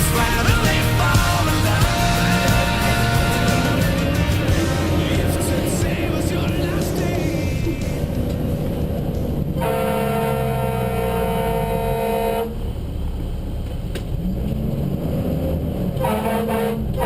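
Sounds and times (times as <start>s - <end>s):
road noise: 0.0s - 17.0s
truck engine: 0.0s - 17.0s
fire engine air horn blasts: 9.6s - 12.6s, 16.0s - 17.0s.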